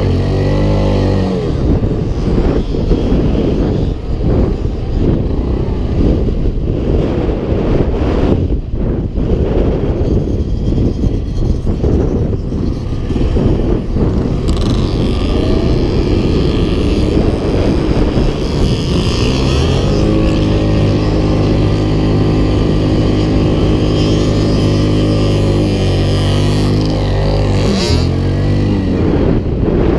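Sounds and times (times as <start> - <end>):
quad and motorbike engines: 0.0 - 29.9.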